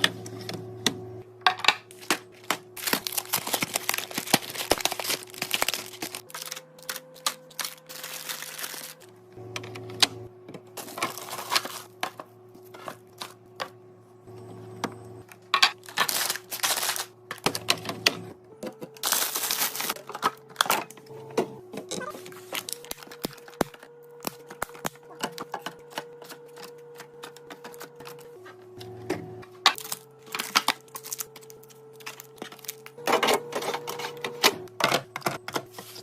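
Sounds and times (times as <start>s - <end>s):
plastic containers clattering: 1.4s - 6.6s
packaging rustling: 1.9s - 9.1s, 10.8s - 12.0s, 15.8s - 17.5s, 18.9s - 20.8s, 22.0s - 25.2s, 29.7s - 34.2s.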